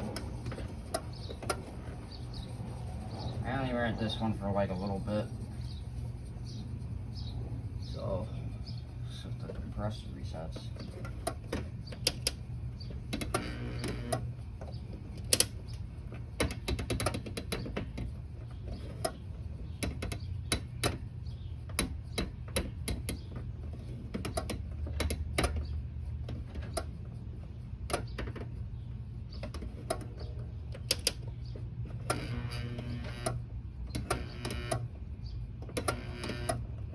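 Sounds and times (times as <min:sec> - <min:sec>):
air conditioner humming: 0:00.0 - 0:36.9
irregular clicks and taps: 0:10.8 - 0:15.8.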